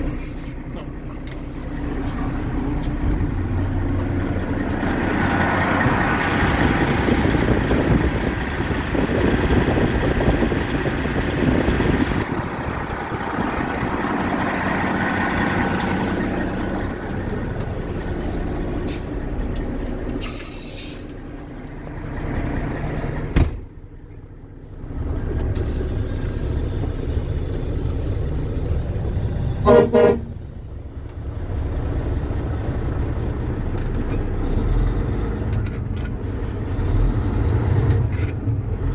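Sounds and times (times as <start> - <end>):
diesel truck engine running: 0.0 - 38.9
truck horn blast: 29.6 - 30.6.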